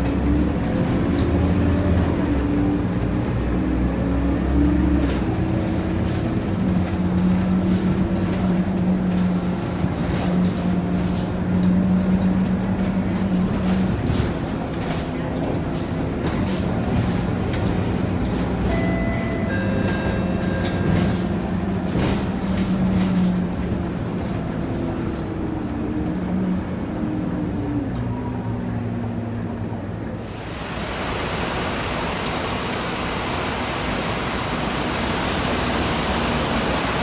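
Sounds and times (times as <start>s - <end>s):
bus engine running: 0.0s - 37.0s
loud steady hiss: 30.2s - 37.0s.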